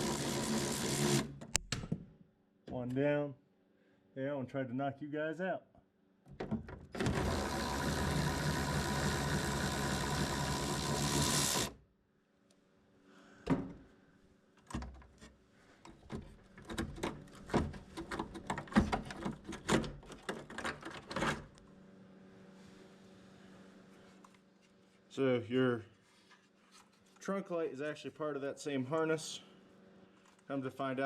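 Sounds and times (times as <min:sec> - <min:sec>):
cordless power tool running: 0:00.0 - 0:01.4, 0:07.0 - 0:11.8
plastic parts clicking and knocking: 0:14.6 - 0:21.4.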